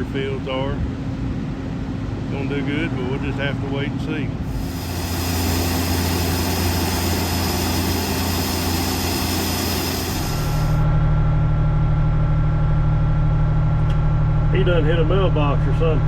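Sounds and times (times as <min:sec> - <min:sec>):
farm machinery engine running: 0:04.4 - 0:11.0.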